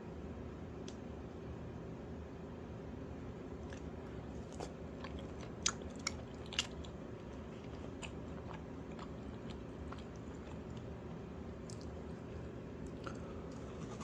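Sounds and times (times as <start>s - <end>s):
wet mouth clicks chewing: 3.6s - 12.2s.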